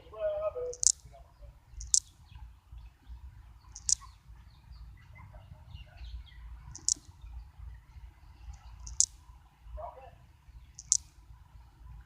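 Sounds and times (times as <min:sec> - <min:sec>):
faint bird twittering: 0:00.0 - 0:11.3
high-pitched bird chirps: 0:00.8 - 0:01.1, 0:01.8 - 0:02.1, 0:03.7 - 0:04.2, 0:06.7 - 0:07.1, 0:08.6 - 0:09.1, 0:10.8 - 0:11.1
low wind rumble: 0:01.0 - 0:12.0.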